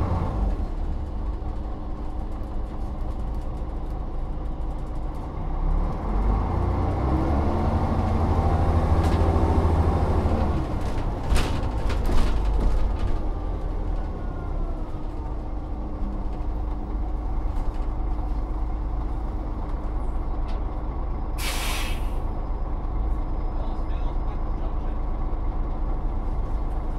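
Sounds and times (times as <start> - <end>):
bus diesel engine: 0.0 - 26.9
air hiss: 21.4 - 22.2.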